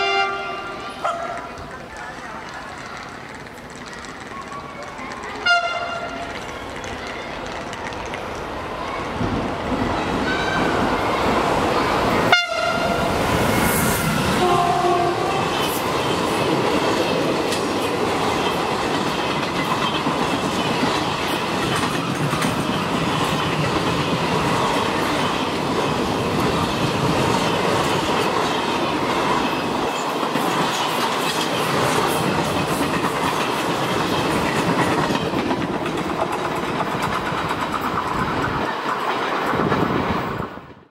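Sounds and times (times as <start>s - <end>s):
train horn tones: 0.0s - 1.0s, 5.4s - 6.3s, 12.3s - 13.2s, 14.2s - 15.8s
train wheels rumbling on rails: 0.0s - 40.9s.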